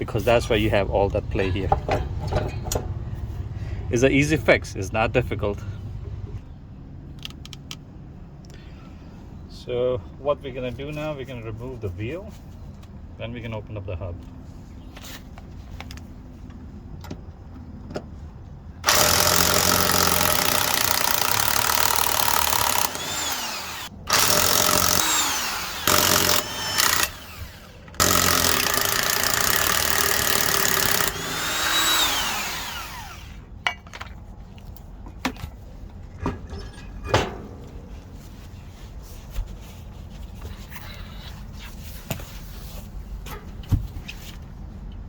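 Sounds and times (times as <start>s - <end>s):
power tool bursts: 18.8s - 33.4s
metal parts clanking: 36.1s - 37.9s.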